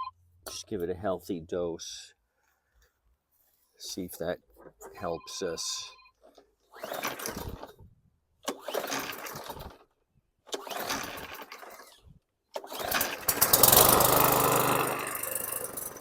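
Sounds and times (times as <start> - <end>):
recoil starter pulls: 6.3 - 7.8, 8.4 - 9.9, 10.5 - 16.0
lawn mower engine running: 8.6 - 9.8, 10.5 - 11.9, 12.6 - 16.0.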